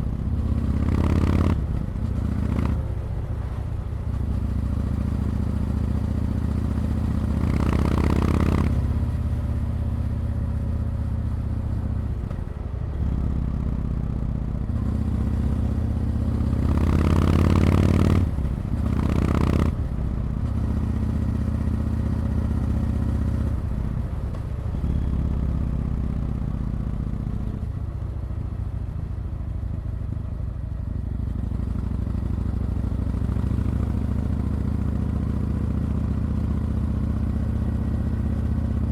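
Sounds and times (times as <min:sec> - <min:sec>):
motorcycle engine revving: 0:00.0 - 0:09.5, 0:14.7 - 0:23.5.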